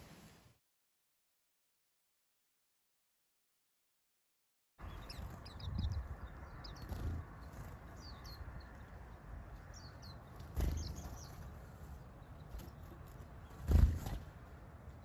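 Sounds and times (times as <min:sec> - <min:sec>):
outdoor background: 0:00.0 - 0:00.6, 0:04.8 - 0:15.0
small birds chirping: 0:04.8 - 0:15.0.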